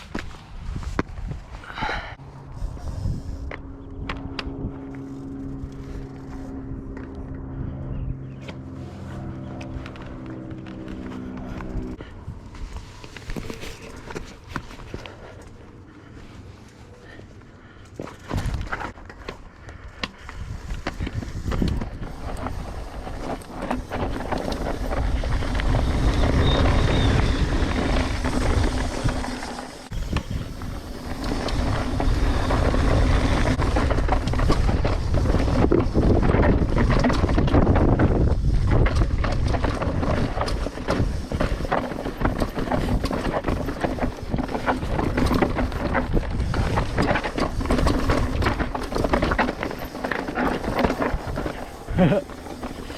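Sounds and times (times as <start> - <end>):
wind on microphone: 0.0 - 8.4, 23.9 - 49.5
bike tyres rumbling on dirt: 8.3 - 52.9
bike rattling and knocking: 17.0 - 52.9.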